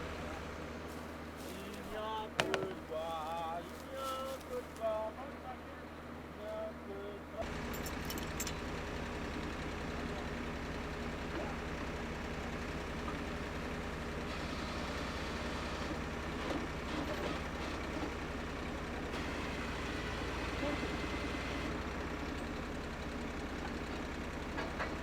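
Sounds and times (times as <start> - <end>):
drill rig engine running: 13.9 - 22.2.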